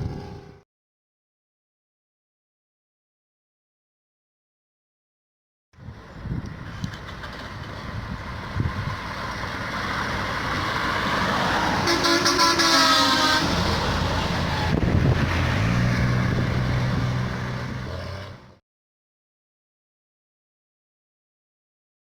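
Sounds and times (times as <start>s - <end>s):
road noise: 0.0s - 0.6s, 5.8s - 18.6s
bus engine: 5.8s - 18.6s
multi-tone bus horn: 11.8s - 14.8s.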